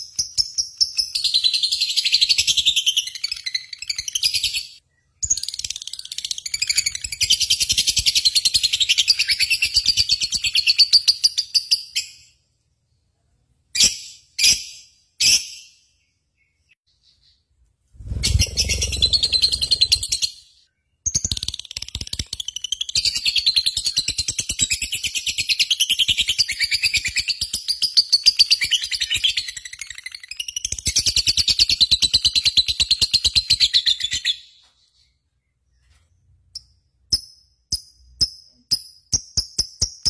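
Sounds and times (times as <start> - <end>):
birds chirping rapidly: 15.2 - 24.2.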